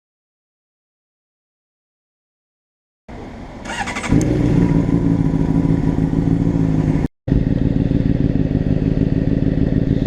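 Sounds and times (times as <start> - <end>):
motorcycle engine running: 3.6 - 10.0.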